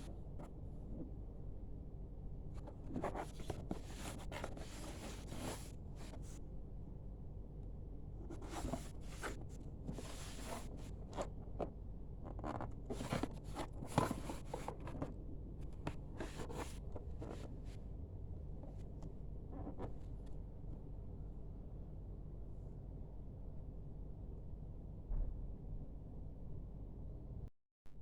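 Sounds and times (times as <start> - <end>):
faint low hum: 0.0 - 28.0
packaging rustling and scraping: 12.5 - 15.2.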